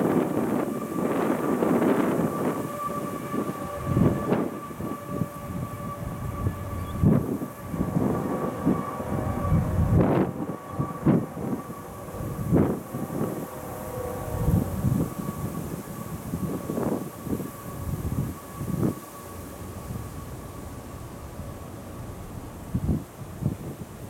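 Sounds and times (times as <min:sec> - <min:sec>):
wind thumping microphone: 0:00.0 - 0:19.0
freight train rumbling past: 0:00.0 - 0:24.0.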